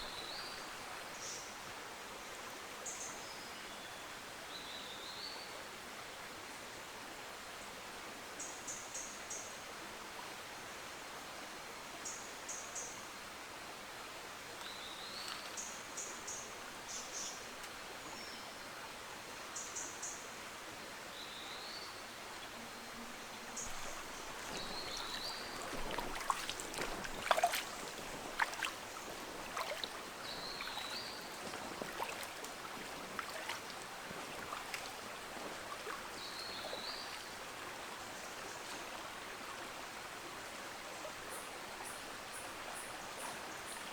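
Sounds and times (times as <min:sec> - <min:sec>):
forest stream running: 0:00.0 - 0:43.9
birds chirping: 0:22.7 - 0:32.2.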